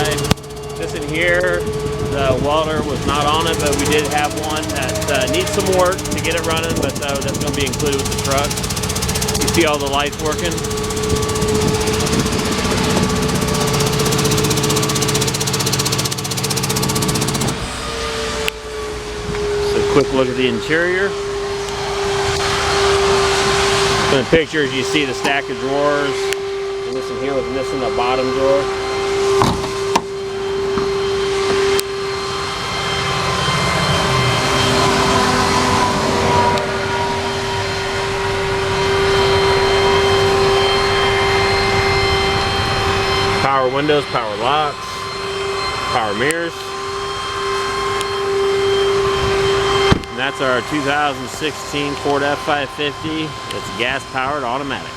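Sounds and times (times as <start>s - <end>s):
truck engine idling: 0.0s - 19.3s
air compressor running: 0.0s - 54.9s
machinery whine and rumble: 0.0s - 54.9s.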